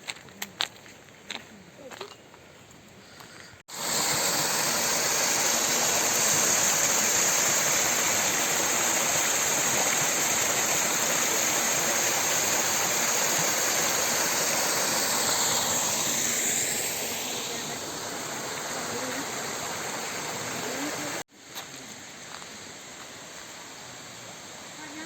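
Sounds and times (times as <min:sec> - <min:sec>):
waterfall rushing: 0:03.7 - 0:21.3.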